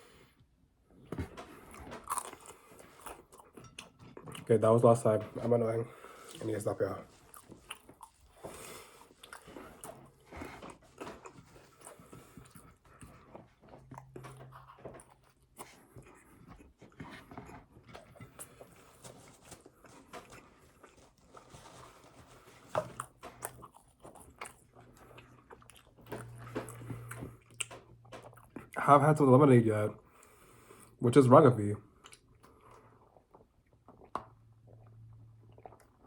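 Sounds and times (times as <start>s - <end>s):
person chewing and biting: 1.6s - 4.5s, 7.2s - 28.8s, 32.0s - 36.0s.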